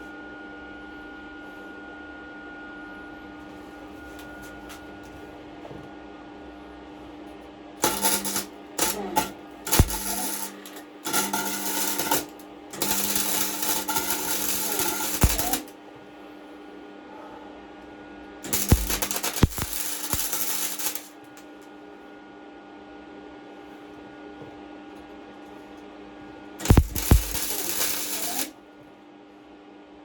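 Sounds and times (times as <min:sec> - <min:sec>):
arc welder crackling: 0:07.8 - 0:15.8, 0:18.4 - 0:21.5, 0:26.6 - 0:28.6
welder steady hum: 0:07.8 - 0:15.8, 0:18.2 - 0:21.7, 0:26.6 - 0:28.6.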